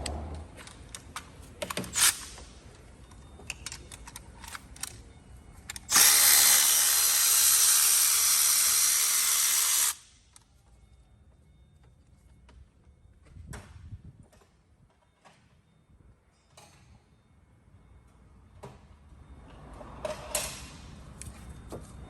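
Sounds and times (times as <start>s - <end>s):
handheld power tool running: 5.9s - 10.1s.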